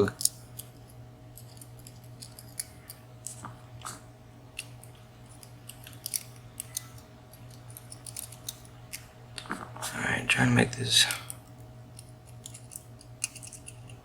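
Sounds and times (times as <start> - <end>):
steady low hum: 0.0 - 14.0
metallic clicks of lock parts: 0.2 - 3.4, 4.6 - 9.0, 12.0 - 14.0.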